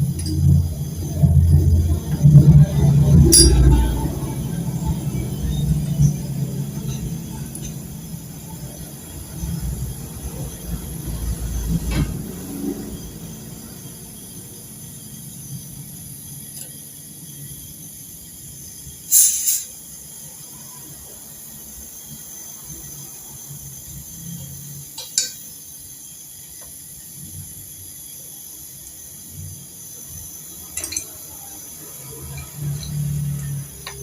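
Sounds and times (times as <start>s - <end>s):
low machine hum: 0.0s - 16.4s
gas hissing from hose: 11.5s - 34.0s.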